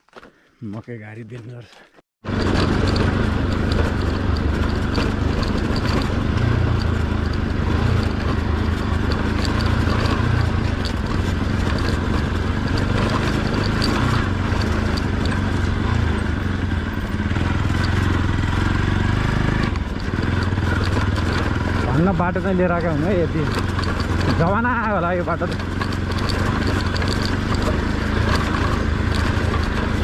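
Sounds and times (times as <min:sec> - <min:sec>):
light clicks and rattles: 0:01.7 - 0:18.3, 0:19.4 - 0:30.0
motorcycle engine running: 0:02.2 - 0:30.0.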